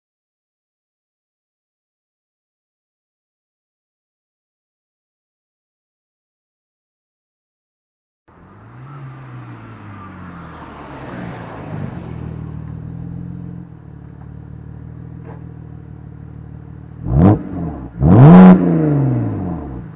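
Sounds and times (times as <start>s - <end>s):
car engine idling and revving: 8.3s - 19.9s.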